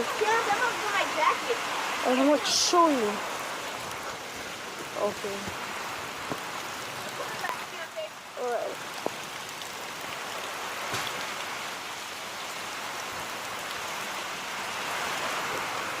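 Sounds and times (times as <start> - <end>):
rain falling and splashing: 0.0 - 16.0.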